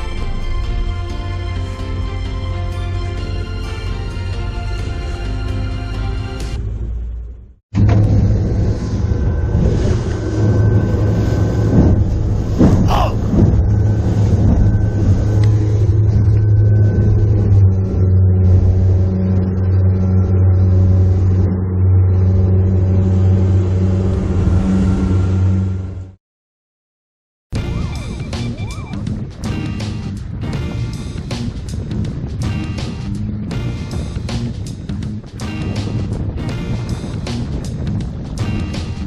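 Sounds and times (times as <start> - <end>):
boat engine droning: 0.0 - 26.2.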